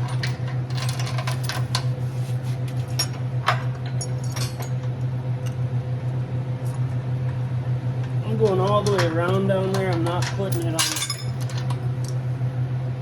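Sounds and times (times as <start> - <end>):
metal chain clinking: 0.0 - 1.9, 3.9 - 4.8, 8.5 - 12.2
steady low hum: 0.0 - 13.0.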